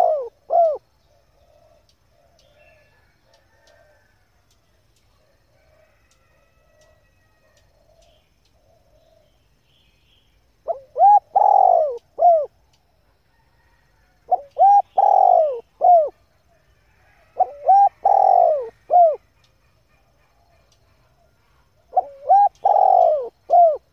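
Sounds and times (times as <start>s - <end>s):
dove cooing: 0.0s - 4.0s, 10.6s - 12.6s, 14.3s - 19.5s, 20.2s - 23.9s.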